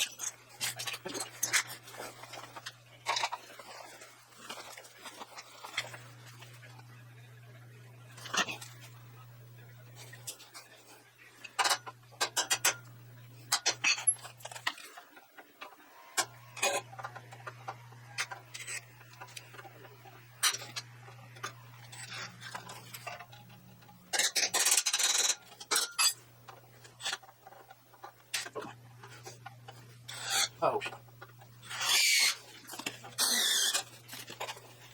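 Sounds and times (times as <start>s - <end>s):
faint low hum: 0.0s - 34.9s
metal clicks and clanks: 11.4s - 12.9s, 21.4s - 28.6s.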